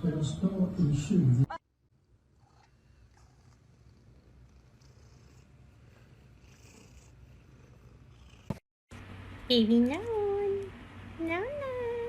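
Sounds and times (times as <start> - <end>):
cat purring: 2.0 - 8.6.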